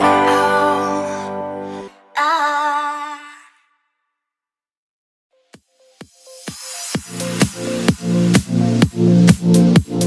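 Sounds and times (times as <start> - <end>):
background music: 0.0 - 2.7, 5.4 - 10.0
electronic music track: 0.0 - 2.9, 5.4 - 10.0.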